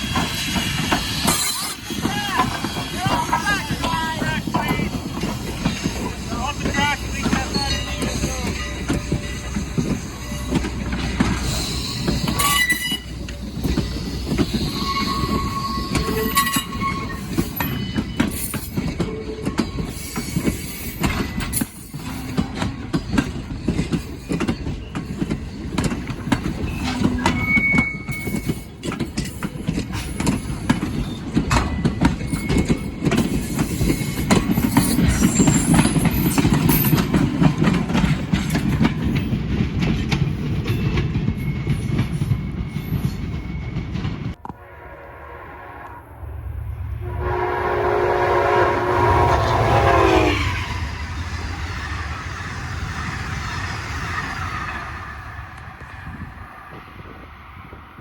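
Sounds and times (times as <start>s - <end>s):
train wheels clicking over rails: 0.0s - 44.4s
high wheel squeals: 7.0s - 22.6s, 26.6s - 28.7s, 30.9s - 37.0s.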